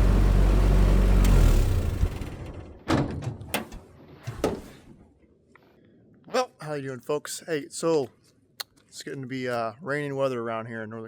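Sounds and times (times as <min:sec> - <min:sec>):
truck engine droning: 0:00.0 - 0:02.7.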